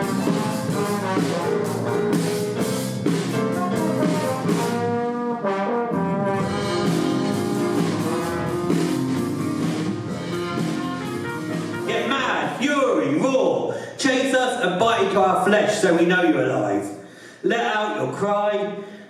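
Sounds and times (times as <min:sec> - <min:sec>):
brass ensemble music: 0:00.0 - 0:12.8.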